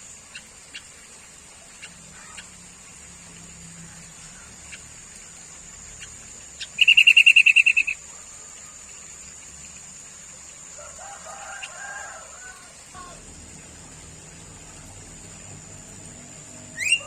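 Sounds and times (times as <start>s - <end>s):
bird chattering: 6.6s - 8.0s, 16.7s - 17.0s
bird soft warbling: 13.0s - 17.0s
high-pitched whine: 13.0s - 17.0s.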